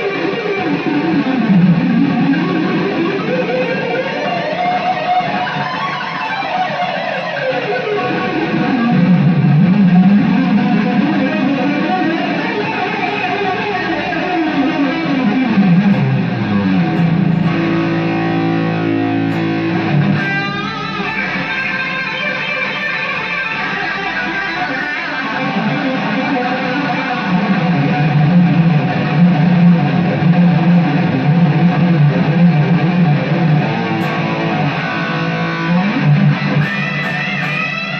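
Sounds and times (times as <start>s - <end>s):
electric guitar through amplifier: 0.0s - 37.9s
guitar note sliding downward: 0.0s - 37.9s.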